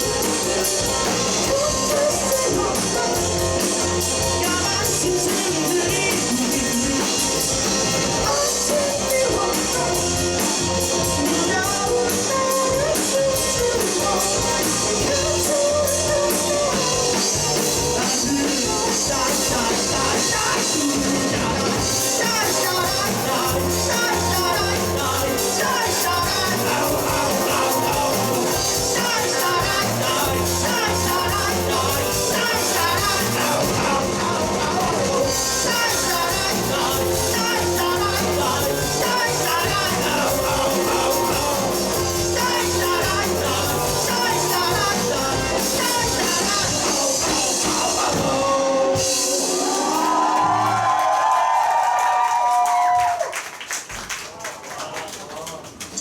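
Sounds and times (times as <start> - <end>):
bass guitar: 0.0 - 51.0
electric guitars: 0.0 - 51.0
drum kit: 0.0 - 53.3.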